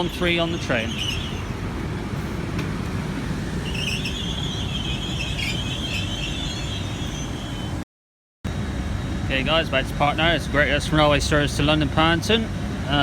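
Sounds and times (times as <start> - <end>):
high-pitched squeal: 0.0 - 1.7, 3.3 - 7.8
diesel train engine rumbling: 0.0 - 7.8, 8.5 - 13.0.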